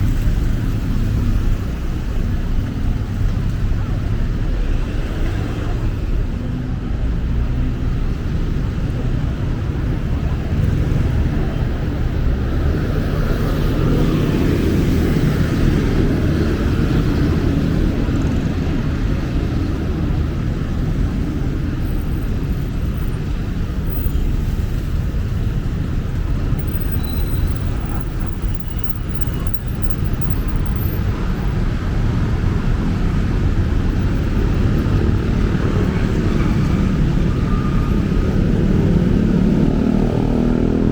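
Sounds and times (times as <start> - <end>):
city road traffic rumble: 0.0 - 40.9.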